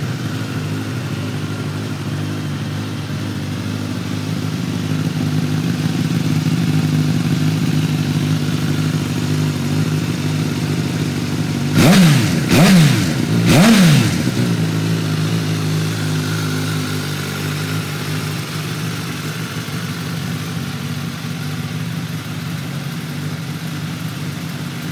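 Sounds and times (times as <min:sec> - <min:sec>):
motorcycle engine idling: 0:00.0 - 0:24.9
engine revving: 0:09.2 - 0:19.1.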